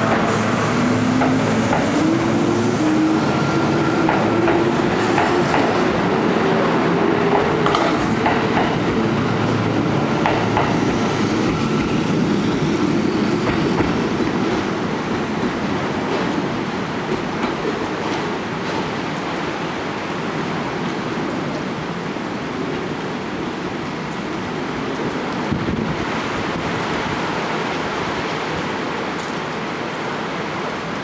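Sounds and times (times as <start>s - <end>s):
electric train running past: 0.0s - 31.0s
train whine: 0.0s - 31.0s.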